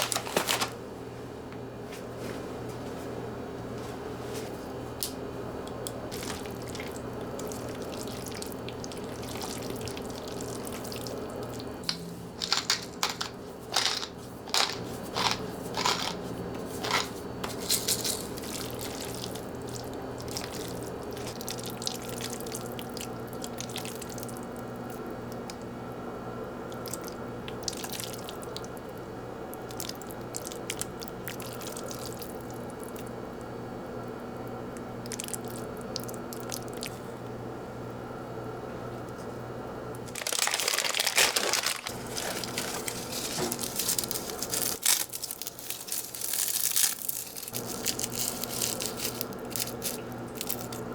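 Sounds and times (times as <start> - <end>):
steady low hum: 0.0 - 40.5
crunching bites of crisp food: 40.1 - 50.8.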